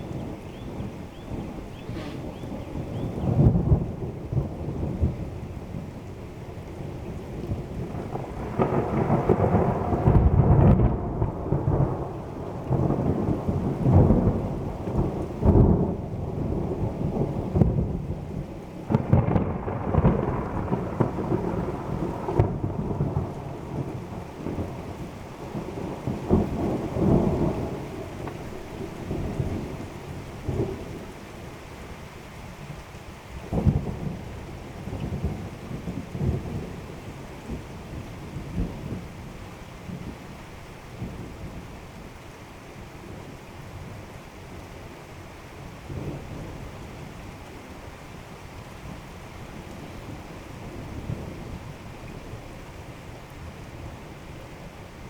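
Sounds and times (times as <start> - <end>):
thunder rumbling: 0.0 - 31.2, 33.4 - 40.3
heavy rain: 0.0 - 55.0.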